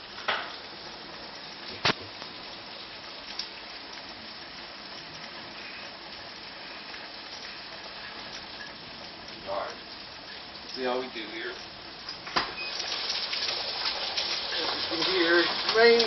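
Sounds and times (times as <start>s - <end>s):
hard rain falling: 0.0s - 16.0s.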